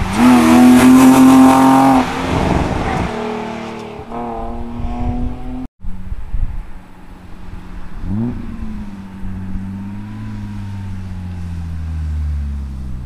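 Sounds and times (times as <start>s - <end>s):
car engine droning while driving: 5.4s - 13.0s.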